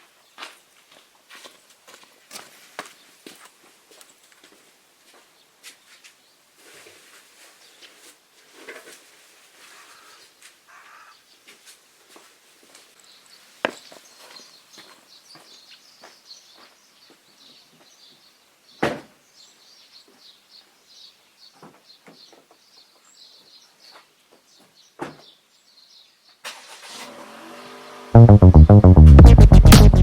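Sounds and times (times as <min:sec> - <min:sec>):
small birds chirping: 0:13.0 - 0:26.4.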